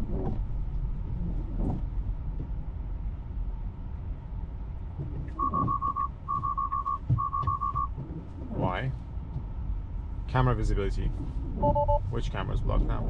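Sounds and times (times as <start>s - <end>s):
road rumble inside car: 0.0s - 13.0s
rapid high alert beeps: 5.4s - 7.9s, 11.6s - 12.0s.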